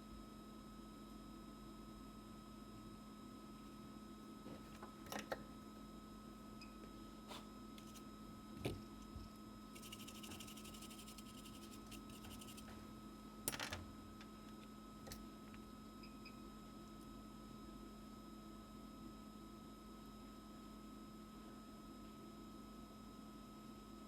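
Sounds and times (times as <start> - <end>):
electrical hum: 3.4 - 18.8.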